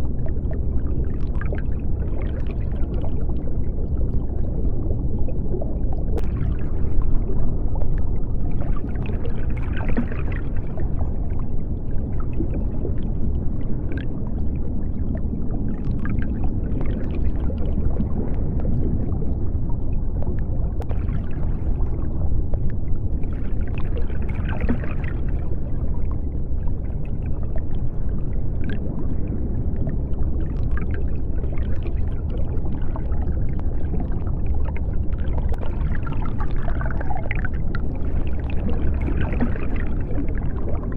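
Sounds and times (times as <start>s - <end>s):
deep underwater rumble: 0.0s - 40.9s
underwater bubbling: 0.0s - 40.9s.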